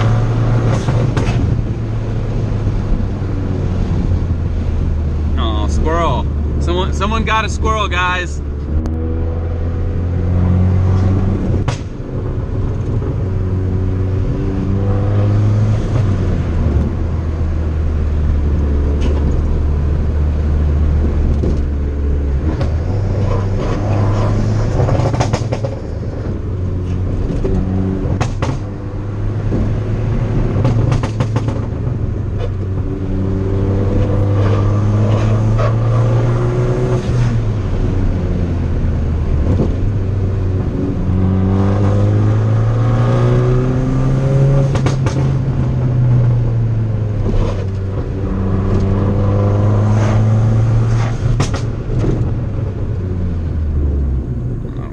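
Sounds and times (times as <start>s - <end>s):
car engine accelerating: 0.0s - 54.9s
exhaust pops and crackles: 11.5s - 13.3s, 21.0s - 21.8s, 24.7s - 28.8s, 30.4s - 32.9s, 44.7s - 45.4s, 51.3s - 52.7s.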